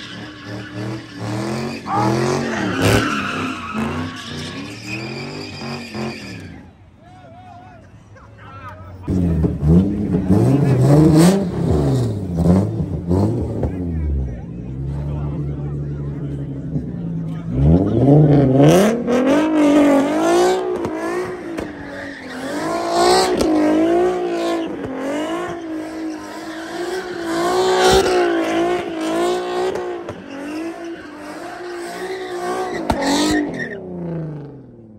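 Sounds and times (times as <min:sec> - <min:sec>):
tires screeching: 0:00.0 - 0:07.0, 0:08.4 - 0:34.9
car engine at high revs: 0:09.0 - 0:34.9.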